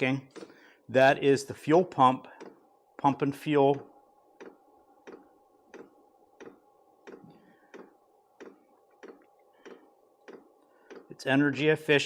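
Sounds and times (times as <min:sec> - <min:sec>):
faint steady hum: 0:00.0 - 0:12.0
fuel pump clicking: 0:04.4 - 0:11.2.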